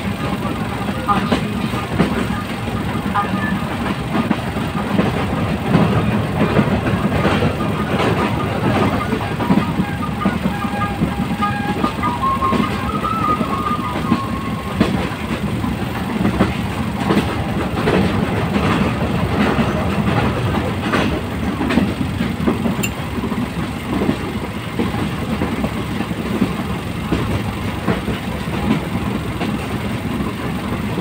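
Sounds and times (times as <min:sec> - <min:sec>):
train rumble: 0:00.0 - 0:31.0.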